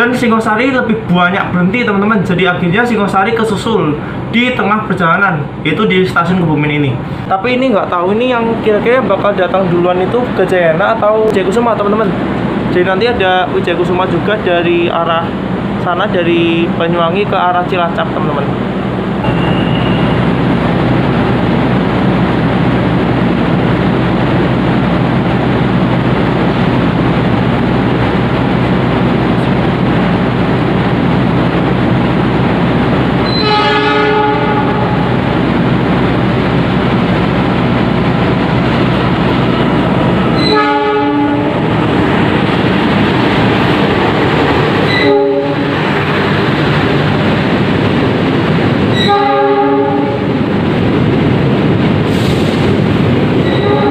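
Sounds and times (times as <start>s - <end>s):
train rumble: 0.0s - 53.9s
locomotive horn blasts: 19.2s - 20.3s, 33.2s - 35.1s, 40.4s - 41.7s, 44.9s - 45.7s, 49.0s - 50.3s, 53.4s - 53.9s.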